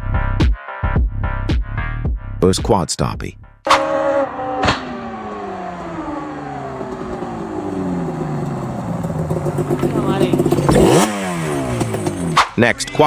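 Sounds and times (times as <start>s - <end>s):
quad engine revs falling: 3.7s - 12.6s.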